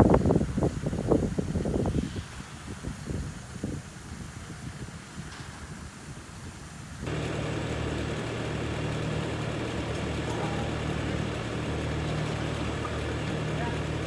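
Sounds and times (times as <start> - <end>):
machinery humming: 7.1 - 14.0.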